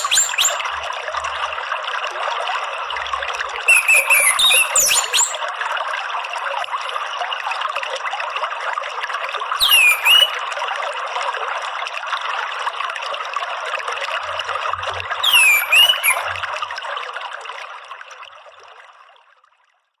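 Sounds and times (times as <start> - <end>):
bird whistled calls: 0.0 - 0.7, 3.7 - 5.4, 9.6 - 10.4, 15.2 - 16.4
water trickling and splashing: 0.0 - 20.0.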